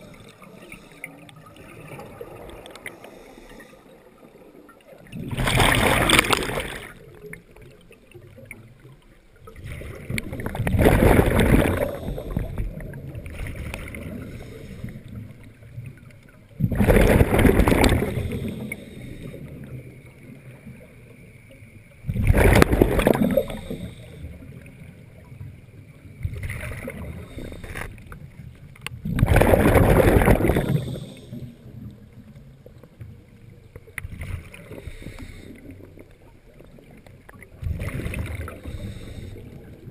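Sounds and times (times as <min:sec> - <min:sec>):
bubbling regulator exhalations: 0:09.5 - 0:15.1, 0:16.6 - 0:18.9, 0:22.1 - 0:24.0, 0:29.0 - 0:31.4.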